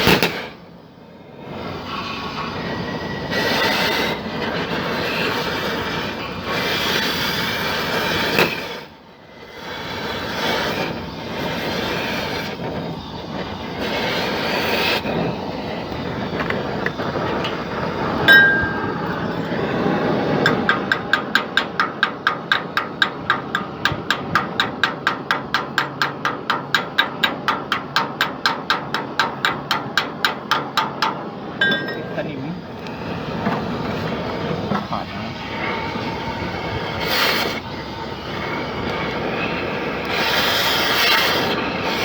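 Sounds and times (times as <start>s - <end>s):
steady mechanical noise: 0.0s - 42.0s
metallic clank: 18.2s - 32.4s
rapid metallic clicking: 20.2s - 31.5s.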